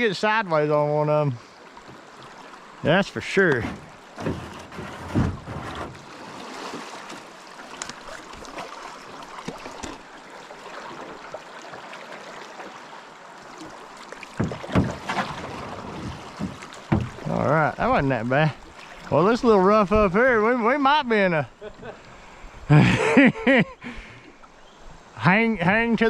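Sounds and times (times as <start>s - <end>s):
canoe knocks: 3.4s - 7.2s, 9.4s - 10.1s, 14.3s - 18.2s
river water rushing: 5.9s - 19.8s.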